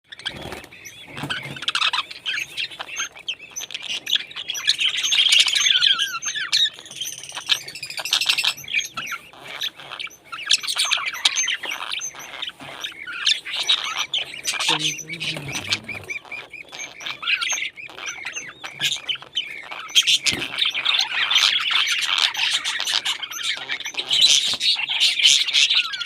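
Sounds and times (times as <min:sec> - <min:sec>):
parrots chirping and squawking: 0:00.1 - 0:26.0.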